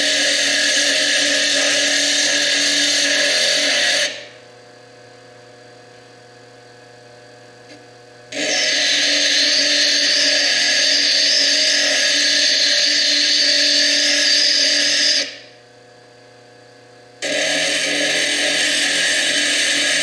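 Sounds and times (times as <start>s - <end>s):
lathe motor running quietly: 15.3s - 20.0s.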